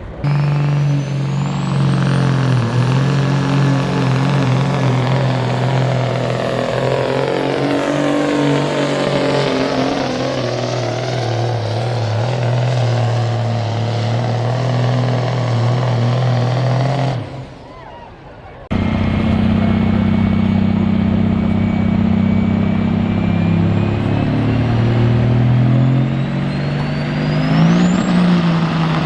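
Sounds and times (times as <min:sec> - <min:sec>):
diesel engine at full throttle: 0:00.0 - 0:29.0
turbo whistle: 0:21.2 - 0:28.6.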